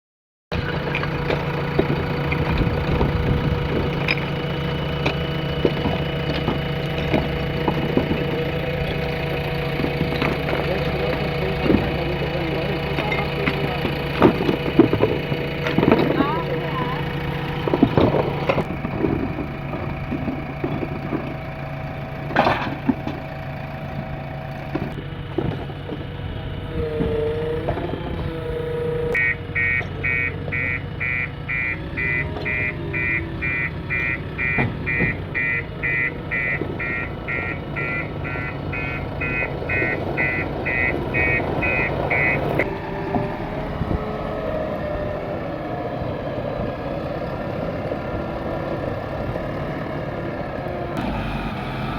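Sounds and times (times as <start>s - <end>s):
diesel engines running: 0.5s - 51.9s
reversing alarm beeping: 26.6s - 44.9s.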